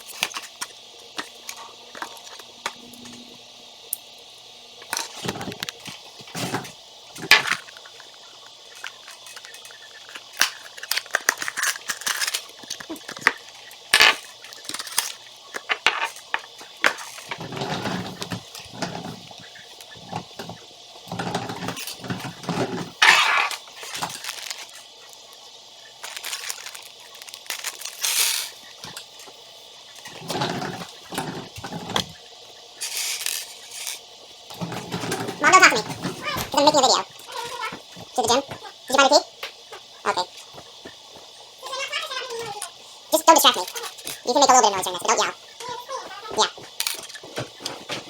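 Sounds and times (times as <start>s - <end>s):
toy pieces clicking and clattering: 8.8s - 16.3s, 26.0s - 28.6s, 32.8s - 34.0s.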